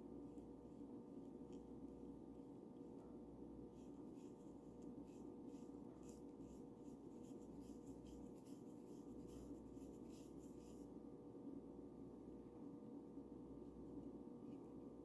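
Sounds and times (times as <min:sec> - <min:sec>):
steady low hum: 0:00.0 - 0:15.0
faint paintbrush strokes: 0:03.0 - 0:11.1.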